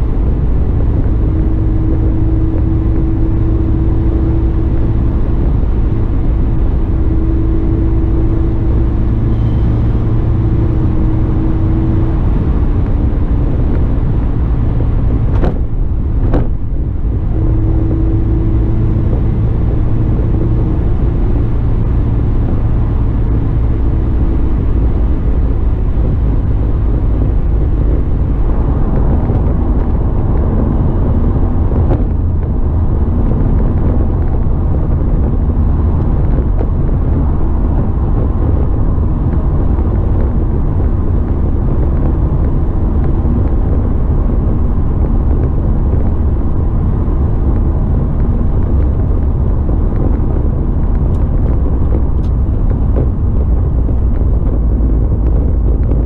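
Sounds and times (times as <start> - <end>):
car engine humming: 0.0 - 56.0
road and tyre rumble: 0.0 - 56.0.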